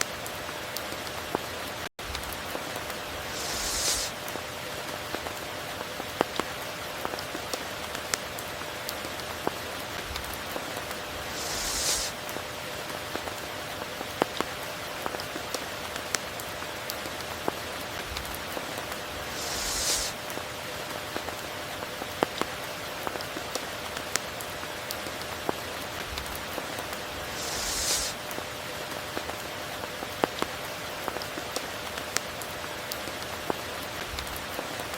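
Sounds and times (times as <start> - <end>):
raindrops tapping close by: 0.0 - 34.9
steady rain falling: 0.0 - 34.9.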